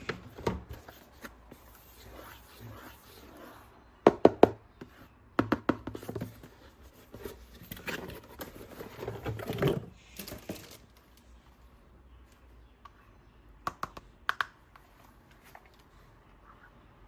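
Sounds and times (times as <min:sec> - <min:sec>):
packaging rustling and scraping: 0:06.0 - 0:11.2.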